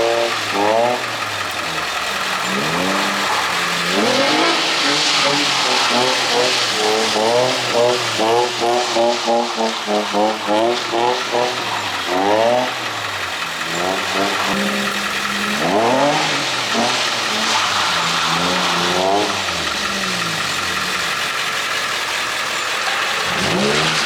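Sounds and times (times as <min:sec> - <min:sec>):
car engine revving: 0:00.0 - 0:24.0
steady hiss: 0:00.3 - 0:12.2.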